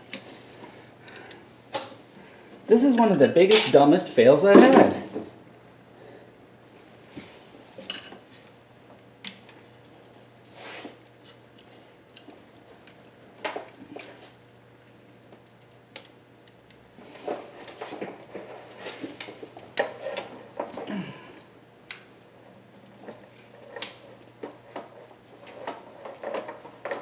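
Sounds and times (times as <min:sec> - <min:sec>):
metal clinks and scrapes: 0:03.5 - 0:03.8.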